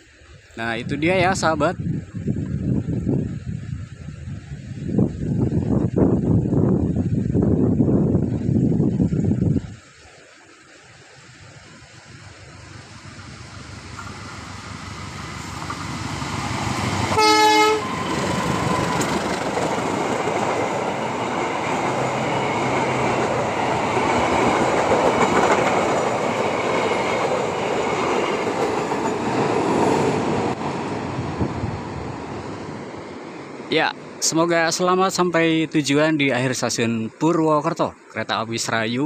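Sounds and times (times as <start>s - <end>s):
locomotive hauling train: 0.0s - 8.8s, 9.6s - 38.3s
train horn blast: 16.8s - 19.4s.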